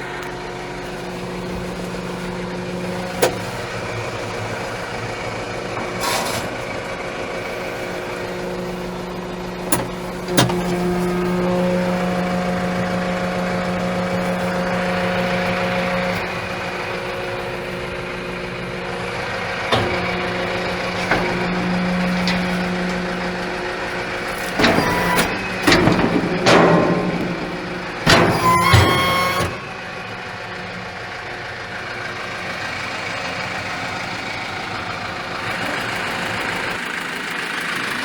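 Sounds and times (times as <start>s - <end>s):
tractor diesel engine running: 0.0s - 38.0s
higher whine: 7.1s - 30.4s.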